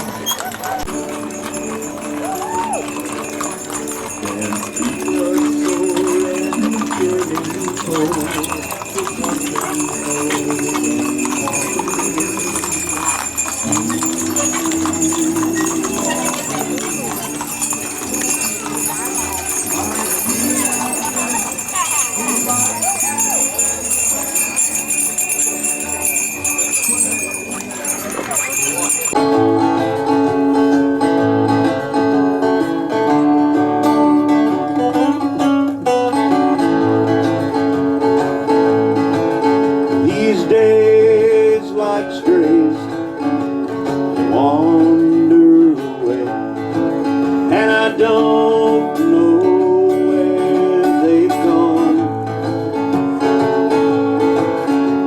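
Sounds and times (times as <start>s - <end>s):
hooves clopping: 0.0s - 29.2s
harness bells jingling: 0.0s - 30.5s, 33.7s - 55.0s
country music on acoustic guitar: 0.0s - 55.0s.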